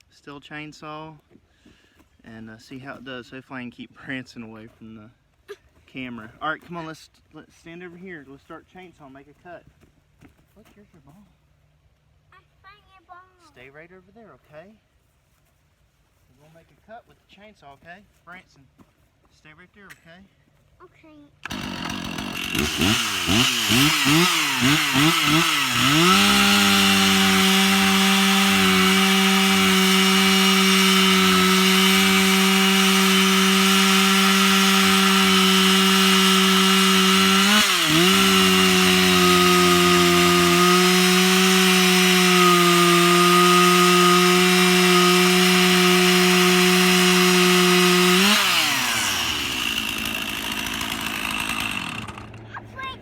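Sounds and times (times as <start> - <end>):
chainsaw cutting through log: 21.4 - 52.9.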